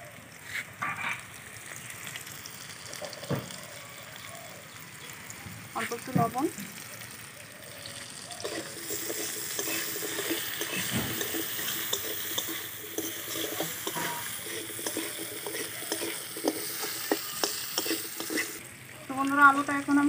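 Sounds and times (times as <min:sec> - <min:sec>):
potatoes sizzling in oil: 0:00.0 - 0:20.0
metal spatula scraping pan: 0:08.4 - 0:18.6.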